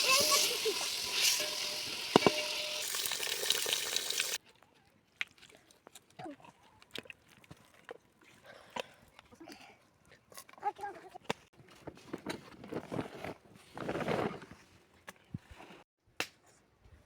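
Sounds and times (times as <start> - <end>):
food sizzling in a pan: 0.0 - 4.4.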